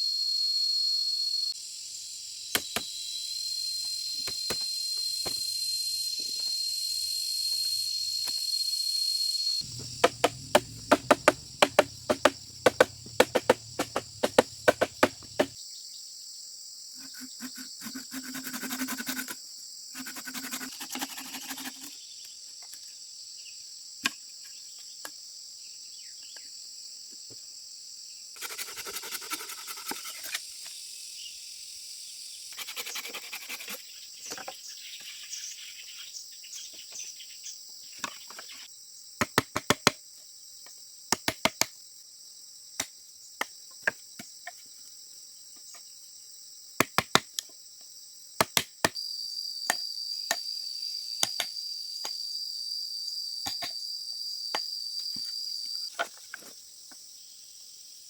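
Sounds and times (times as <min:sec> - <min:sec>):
crickets trilling: 0:00.0 - 0:39.2, 0:47.5 - 0:58.0
sharp knocks: 0:09.6 - 0:15.5
rustling: 0:09.7 - 0:15.5.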